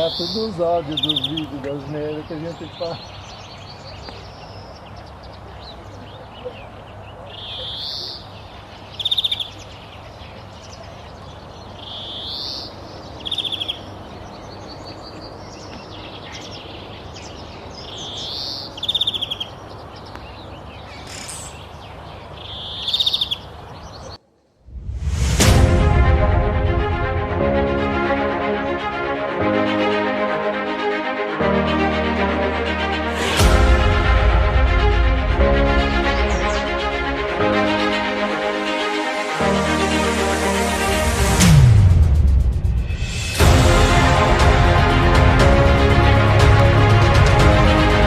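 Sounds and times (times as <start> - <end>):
bird calling: 0.0 - 3.3, 5.7 - 8.4, 17.9 - 24.2
steady outdoor hiss: 0.0 - 48.0
music: 24.8 - 48.0.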